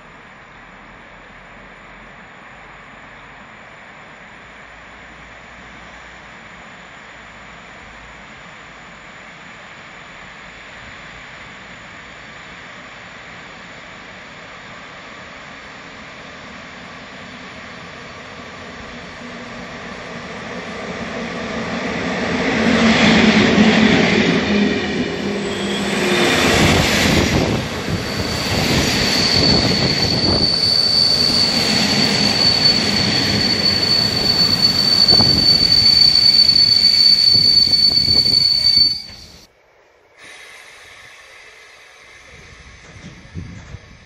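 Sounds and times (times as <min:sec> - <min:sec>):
train rumbling and clattering past: 0:03.4 - 0:39.5, 0:42.1 - 0:44.0
high-pitched wheel and brake squeal: 0:25.2 - 0:39.5.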